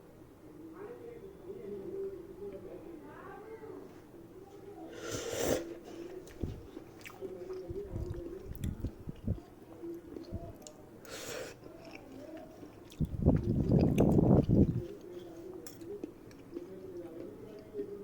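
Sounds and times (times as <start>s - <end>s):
wet chewing of noodles: 4.9s - 17.6s.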